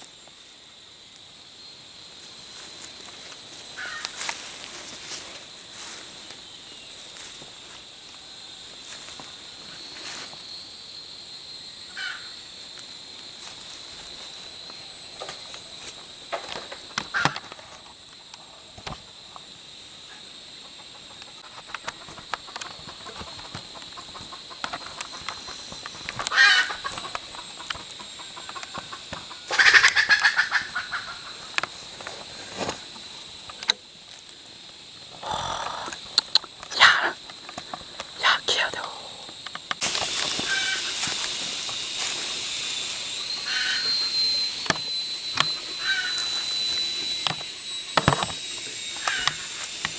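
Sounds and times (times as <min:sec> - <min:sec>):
high-pitched insect drone: 0:00.0 - 0:49.9
rooster crowing: 0:26.3 - 0:27.0, 0:40.4 - 0:41.0, 0:43.2 - 0:46.6.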